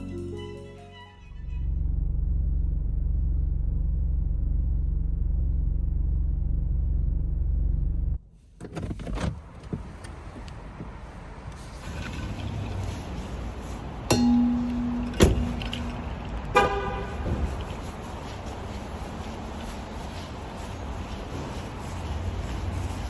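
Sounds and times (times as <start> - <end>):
loud low rumble: 1.2 - 8.2.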